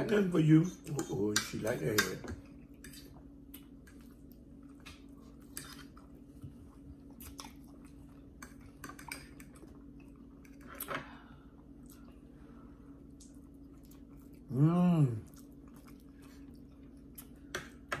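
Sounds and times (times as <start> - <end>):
steady low hum: 0.0 - 18.0
close chewing and biting: 2.4 - 10.9, 15.2 - 17.5.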